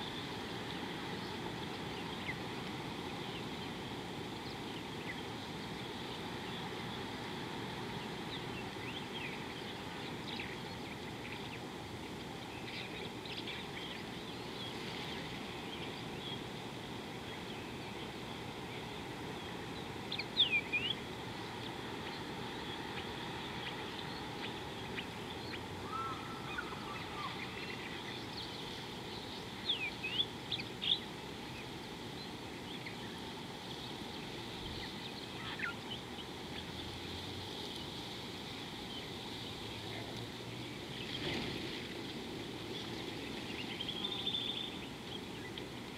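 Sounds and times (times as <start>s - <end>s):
outdoor background hiss: 0.0s - 45.9s
birds chirping: 17.2s - 41.4s, 42.4s - 45.8s.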